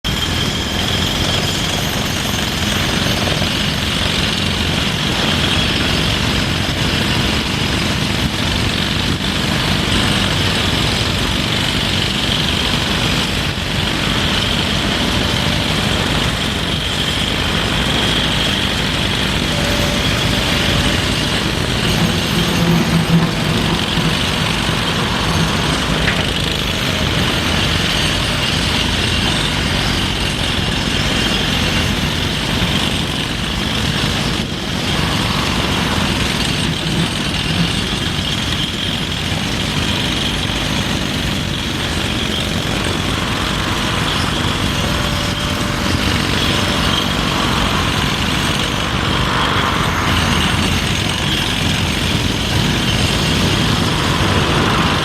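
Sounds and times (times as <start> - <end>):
excavator diesel engines running: 0.0 - 55.0.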